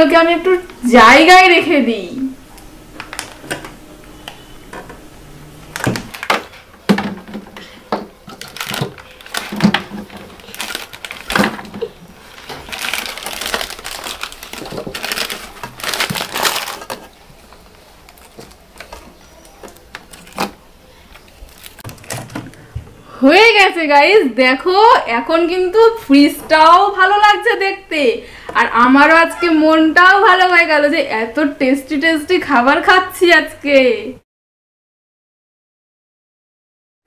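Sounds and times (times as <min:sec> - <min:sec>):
plastic wrappers crinkling: 0:02.7 - 0:05.0, 0:05.6 - 0:22.8
items knocking and clicking: 0:05.7 - 0:23.0.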